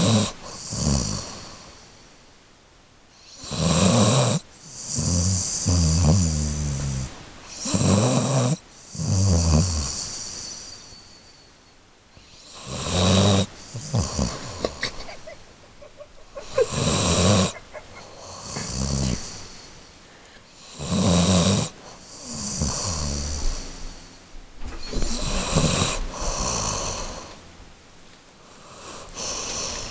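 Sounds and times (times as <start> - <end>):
dog snoring: 0.0 - 1.8, 3.2 - 11.2, 12.2 - 15.0, 16.3 - 19.9, 20.6 - 24.1, 24.8 - 27.4, 28.5 - 29.9.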